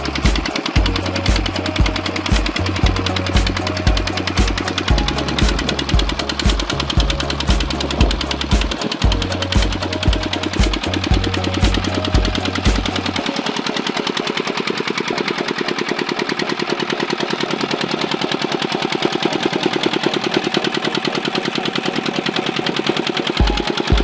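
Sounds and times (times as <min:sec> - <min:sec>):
music bass beat: 0:00.0 - 0:13.3, 0:23.4 - 0:24.0
diesel water pump engine: 0:00.0 - 0:24.0.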